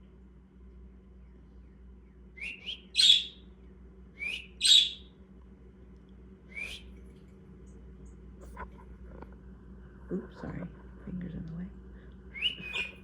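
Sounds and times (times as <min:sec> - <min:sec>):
parakeet chirping: 0:02.8 - 0:03.4, 0:04.4 - 0:05.1, 0:12.5 - 0:13.0.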